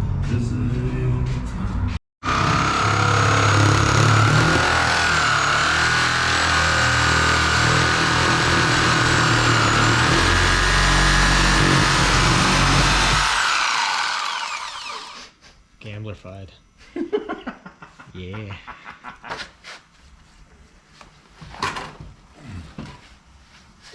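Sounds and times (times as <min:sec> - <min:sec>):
power tool whining: 0:02.2 - 0:15.2.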